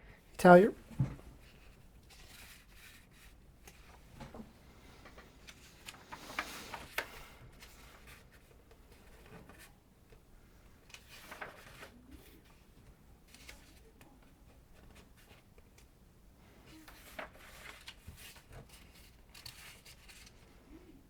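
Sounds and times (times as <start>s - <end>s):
soft handling clicks and rustles: 0.9s - 21.0s.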